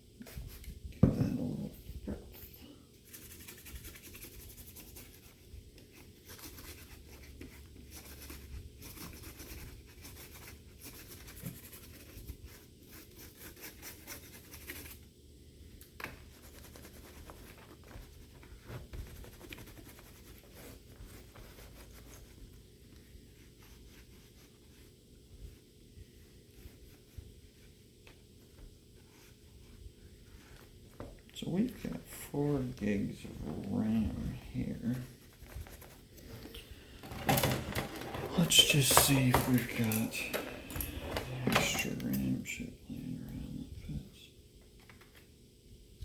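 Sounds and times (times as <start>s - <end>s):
low steady hum: 0.0s - 46.0s
scratching and rubbing on laptop: 3.0s - 15.1s, 16.2s - 30.8s, 34.3s - 36.5s, 37.1s - 42.6s.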